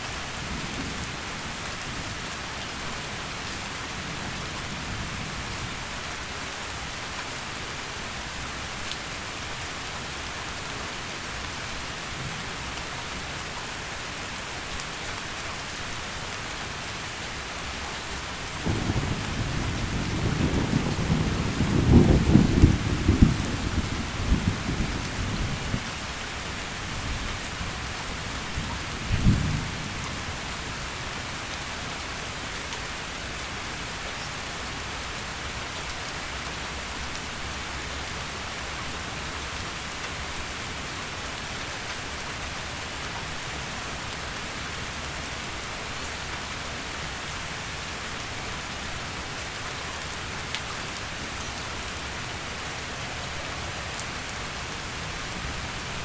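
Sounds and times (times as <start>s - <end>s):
heavy rain falling: 0.0s - 56.0s
thunder rumbling: 18.6s - 25.8s.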